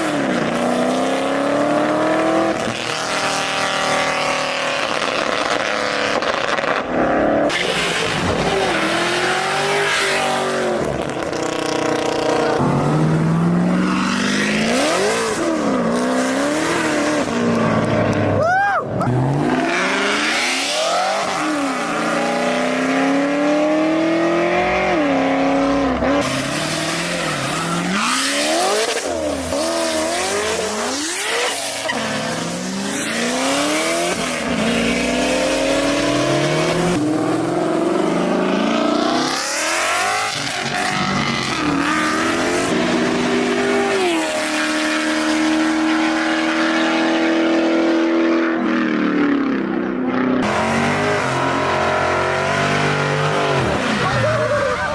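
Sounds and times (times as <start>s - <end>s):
car engine revving: 0.0s - 54.9s.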